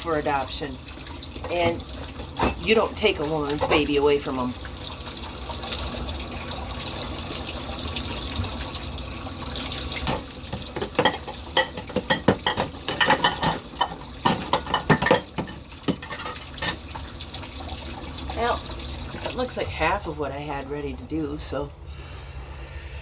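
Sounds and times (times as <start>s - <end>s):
water running from a tap: 0.0s - 21.6s
dishes and cutlery clinking: 10.0s - 16.9s.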